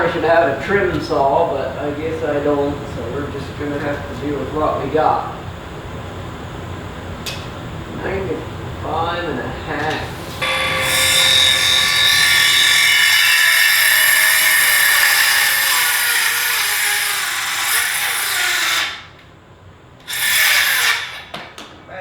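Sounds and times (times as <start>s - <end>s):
power saw cutting wood: 10.4s - 19.2s, 20.0s - 21.3s.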